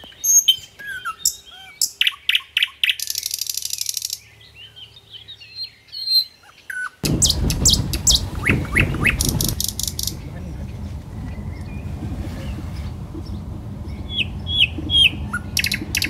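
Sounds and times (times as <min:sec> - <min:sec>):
small birds chirping: 0:00.0 - 0:16.0
buzzy bird trill: 0:05.9 - 0:16.0
loud low rumbling: 0:07.0 - 0:16.0.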